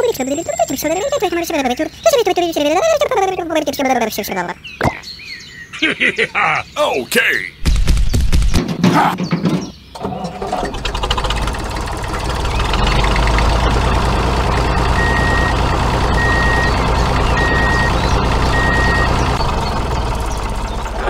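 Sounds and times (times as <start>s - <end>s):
vehicle engine running: 10.4s - 21.0s
reversing alarm beeping: 14.8s - 19.4s.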